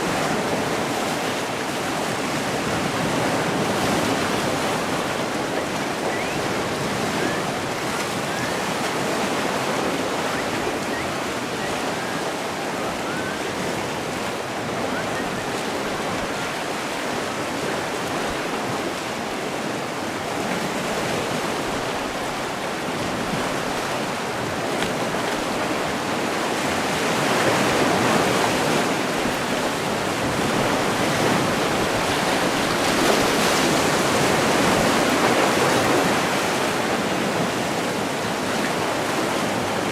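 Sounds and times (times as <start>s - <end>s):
sea waves washing in: 0.0s - 39.9s.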